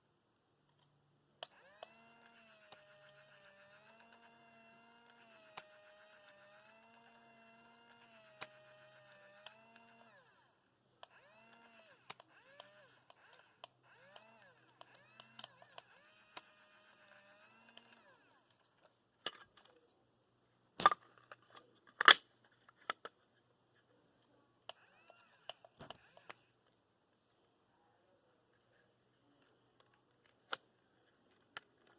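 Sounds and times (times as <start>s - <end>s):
small electric motors whining: 1.4s - 18.5s, 24.7s - 26.6s.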